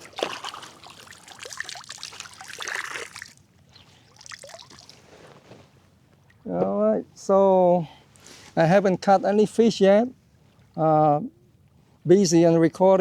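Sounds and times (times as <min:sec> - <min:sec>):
water splashing and trickling: 0:00.0 - 0:05.2.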